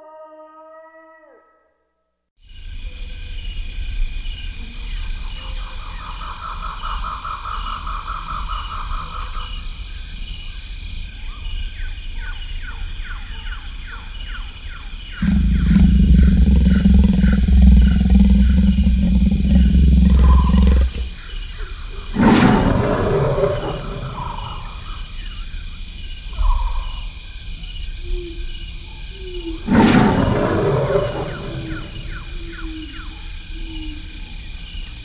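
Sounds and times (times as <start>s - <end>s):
lion-like animal roaring: 15.2s - 21.2s, 22.1s - 25.0s, 29.6s - 32.4s.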